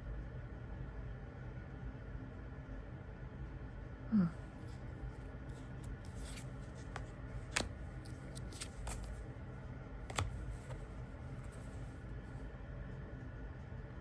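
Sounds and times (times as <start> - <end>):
cards rustling: 5.5 - 9.2
cards clicking on table: 5.9 - 9.1.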